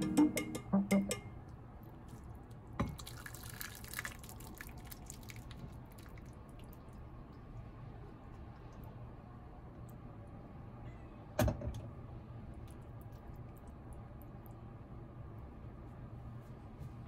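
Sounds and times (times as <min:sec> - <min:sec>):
broth splashing and dripping: 0:02.1 - 0:07.7.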